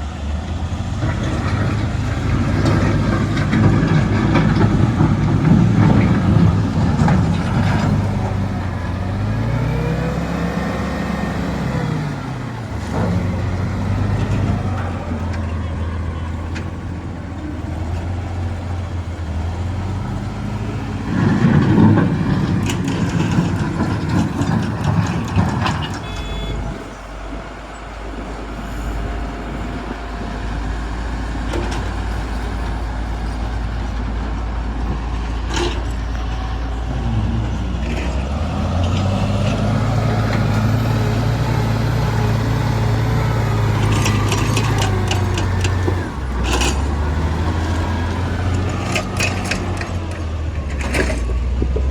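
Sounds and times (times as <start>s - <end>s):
diesel engine drone: 0.0s - 51.9s
rumbling clatter of rocks: 0.8s - 9.3s, 11.4s - 26.9s, 43.0s - 51.9s.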